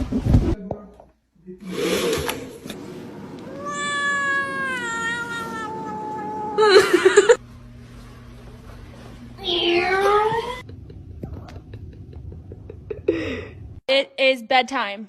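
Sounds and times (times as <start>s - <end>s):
cat meowing: 3.5s - 6.8s.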